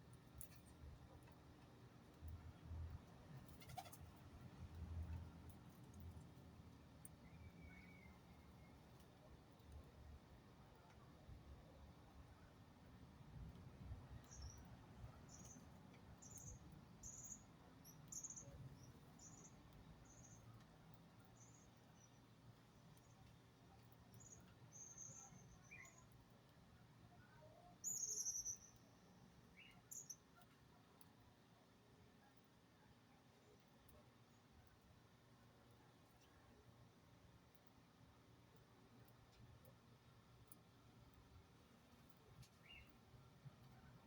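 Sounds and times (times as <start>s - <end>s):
small birds chirping: 15.3s - 20.5s, 27.8s - 30.4s, 42.4s - 43.0s.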